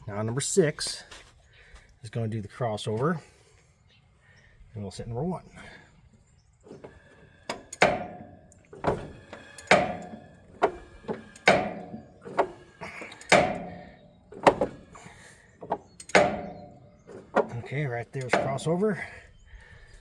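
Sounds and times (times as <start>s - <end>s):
metallic clunks with ring: 7.5s - 18.8s.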